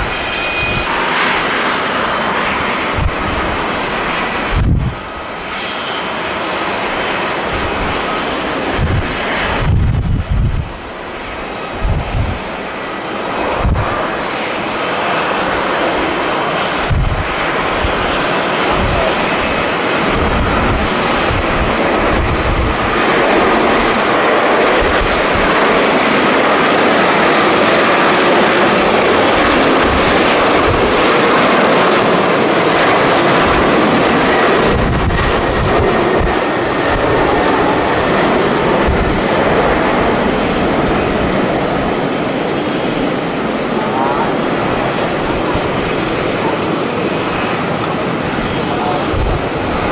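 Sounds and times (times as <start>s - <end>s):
jet airliner engines running: 0.0s - 49.9s
wind buffeting microphone: 0.0s - 49.9s.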